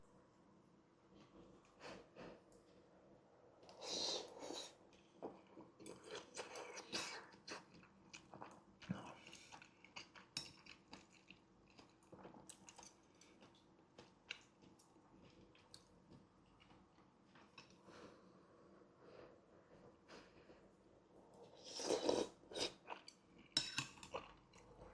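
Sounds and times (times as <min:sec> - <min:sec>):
wet chewing with mouth clicks: 0:05.9 - 0:17.8.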